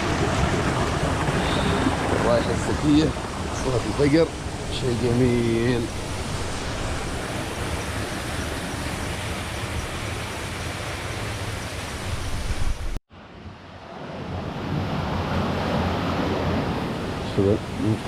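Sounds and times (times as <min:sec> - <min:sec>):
wind buffeting microphone: 0:00.0 - 0:13.0
water rushing along a channel: 0:00.0 - 0:18.0.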